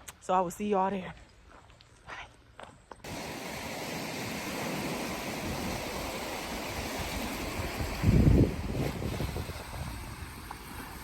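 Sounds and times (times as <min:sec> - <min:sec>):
steam hissing: 0:03.1 - 0:09.9.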